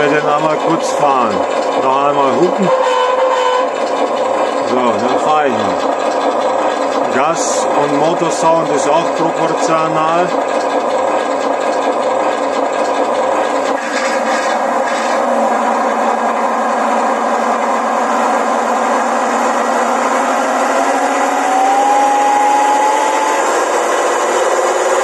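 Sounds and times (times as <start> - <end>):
electric motor and gears whining: 0.0 - 25.0
engine sound through small speaker: 0.0 - 25.0
tone rising in pitch: 17.6 - 25.0.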